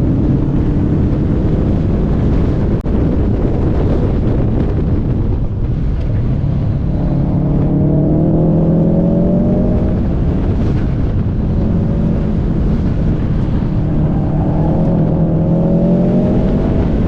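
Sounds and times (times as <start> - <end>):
road and wind rumble: 0.0 - 17.0
car engine accelerating: 5.7 - 17.0.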